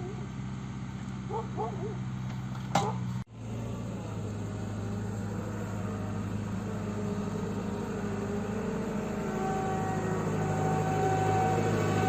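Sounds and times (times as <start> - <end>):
diesel engine running: 0.0 - 12.0
wavering higher tone: 7.2 - 12.0.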